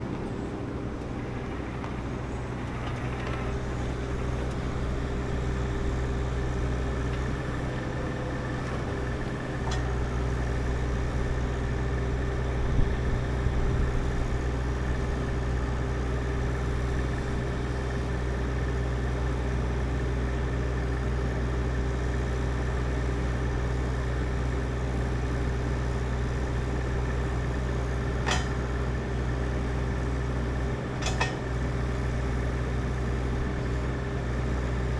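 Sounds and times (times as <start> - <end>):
engine running steadily: 0.0 - 34.9.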